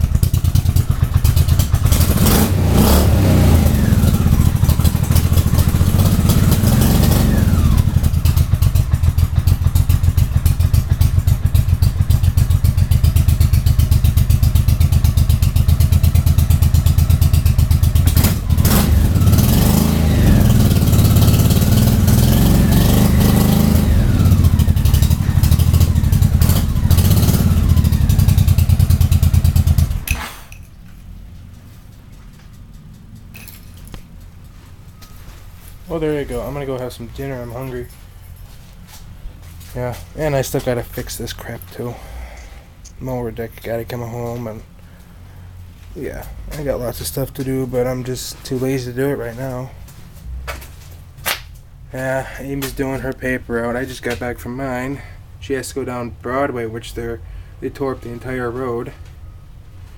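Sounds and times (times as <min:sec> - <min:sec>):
motorcycle engine revving: 0:00.0 - 0:30.5.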